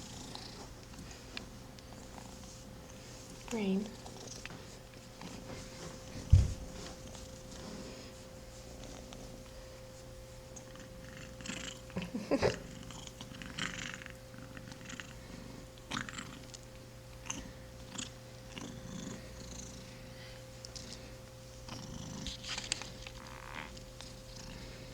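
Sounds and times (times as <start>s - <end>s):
kitten purring: 0.0s - 1.2s, 1.9s - 2.6s, 3.4s - 5.4s, 10.7s - 15.2s, 15.9s - 16.6s, 17.2s - 19.9s, 21.6s - 24.8s.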